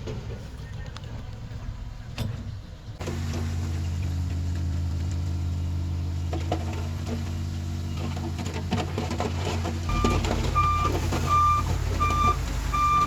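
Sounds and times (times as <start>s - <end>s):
heavy diesel engine running: 2.9s - 13.0s.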